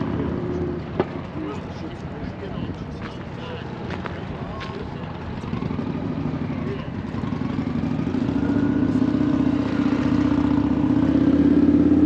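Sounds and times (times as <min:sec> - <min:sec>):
motorcycle engine running: 0:04.8 - 0:12.0.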